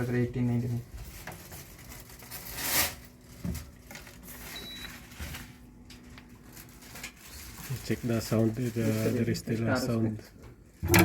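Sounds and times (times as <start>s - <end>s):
air conditioner low hum: 0.0s - 11.0s.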